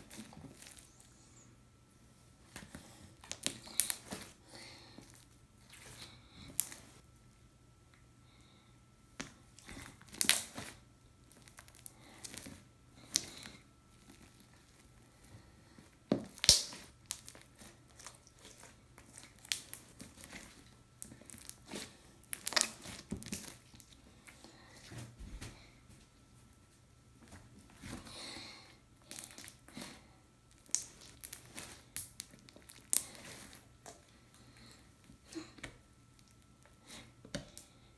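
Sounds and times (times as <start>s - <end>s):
slime crackling and popping: 3.2s - 4.3s, 9.2s - 15.0s, 16.2s - 23.9s, 29.0s - 29.8s, 30.5s - 34.0s.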